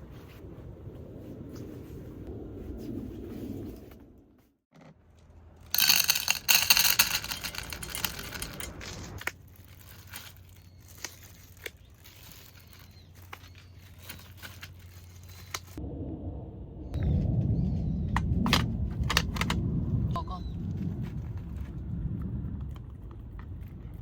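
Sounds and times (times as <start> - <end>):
plastic packaging crinkling: 5.6 - 15.8.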